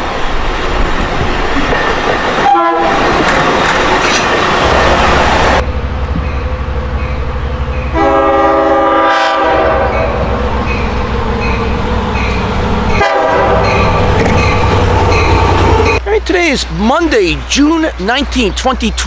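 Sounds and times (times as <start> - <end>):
diesel engine rumble: 4.3 - 8.1, 9.8 - 19.0
train chime horn: 7.8 - 16.0.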